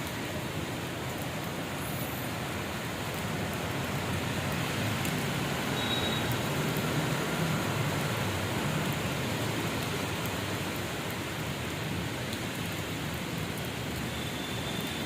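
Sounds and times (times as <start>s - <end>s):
heavy rain hissing: 0.1s - 12.1s.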